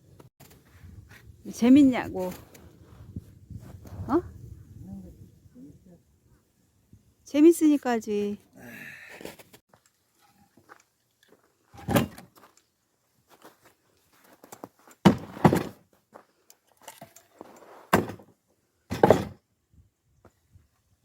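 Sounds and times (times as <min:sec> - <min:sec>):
axe splitting logs: 0:15.0 - 0:15.8, 0:17.9 - 0:18.3, 0:18.9 - 0:19.4.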